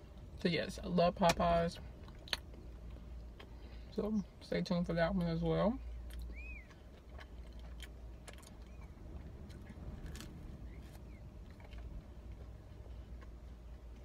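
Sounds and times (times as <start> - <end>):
low steady hum: 0.0 - 14.0
chewing pizza mouth clicks: 2.0 - 3.5, 6.0 - 14.0.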